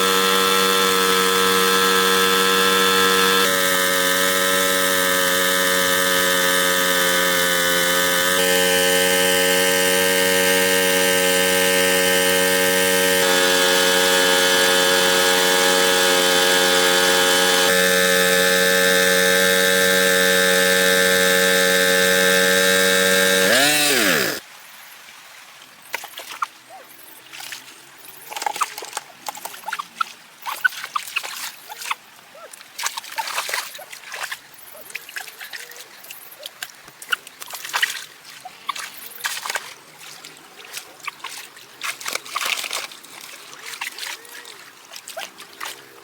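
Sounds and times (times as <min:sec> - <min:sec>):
steady motor drone: 0:00.0 - 0:24.4.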